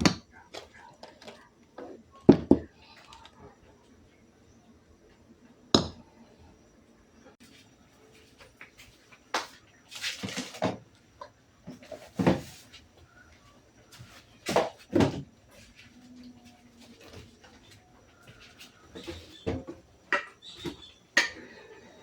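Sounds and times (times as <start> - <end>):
objects clattering and scraping: 0.0 - 3.6, 9.9 - 12.9, 13.8 - 21.6.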